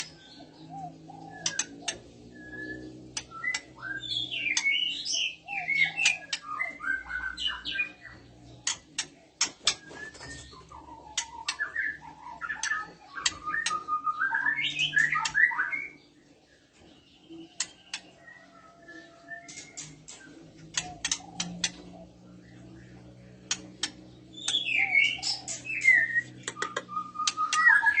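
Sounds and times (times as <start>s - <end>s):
bird chattering calls: 0.0s - 15.7s, 19.5s - 28.0s
sharp clicks: 1.4s - 2.0s, 19.5s - 21.8s, 26.3s - 27.7s.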